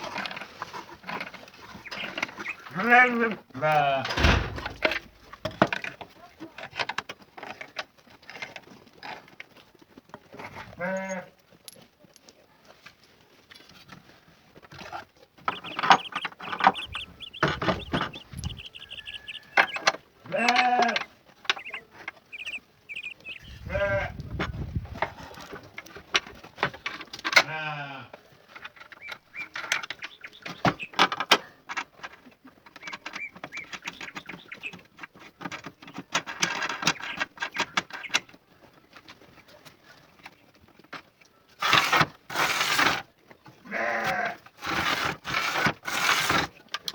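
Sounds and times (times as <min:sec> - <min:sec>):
livestock bleating: 0:02.7 - 0:04.0, 0:10.7 - 0:11.4, 0:15.5 - 0:21.8, 0:22.4 - 0:24.2, 0:27.4 - 0:28.1, 0:43.6 - 0:44.4.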